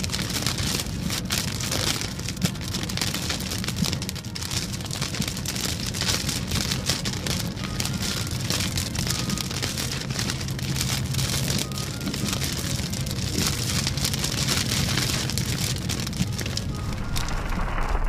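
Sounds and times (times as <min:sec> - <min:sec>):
rain hitting car windscreen: 0:00.0 - 0:18.0
car engine and tyres drone: 0:12.2 - 0:18.0.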